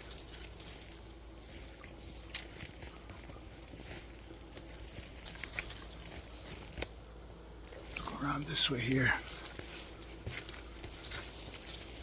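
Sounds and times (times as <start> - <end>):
footsteps crunching on leaf litter: 0.0 - 7.0, 7.7 - 12.0
faint low outdoor rumble: 0.0 - 12.0
twig snapping: 2.2 - 3.3, 4.4 - 7.1.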